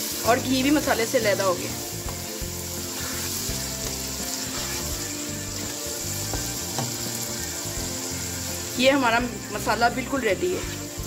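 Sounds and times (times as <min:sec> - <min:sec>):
food sizzling in a pan: 0:00.0 - 0:11.0
spatula scraping a pan: 0:02.0 - 0:07.3.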